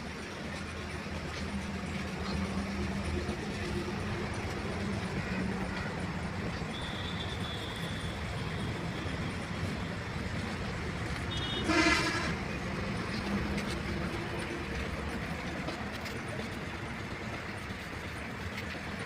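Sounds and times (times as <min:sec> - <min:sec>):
outdoor traffic noise: 0:00.0 - 0:19.0
vehicle horn toot: 0:11.3 - 0:12.4.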